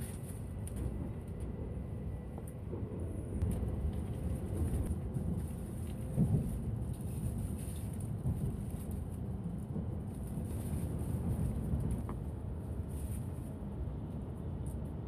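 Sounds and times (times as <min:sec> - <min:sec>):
train running low rumble: 0:00.0 - 0:15.0.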